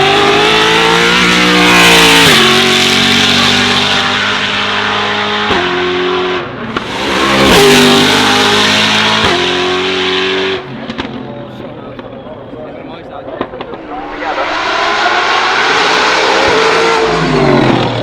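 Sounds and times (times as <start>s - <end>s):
car engine accelerating: 13.7s - 18.0s.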